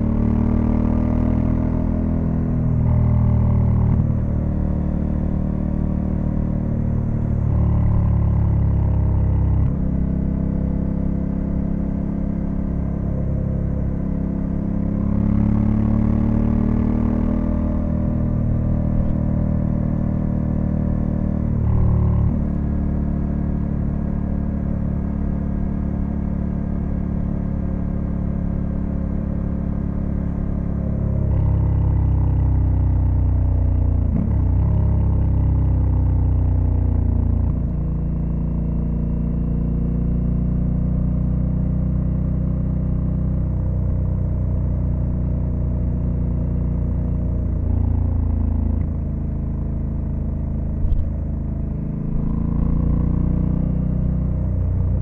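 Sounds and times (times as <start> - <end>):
motorcycle engine running: 0.0 - 55.0
wind and road noise: 40.0 - 55.0.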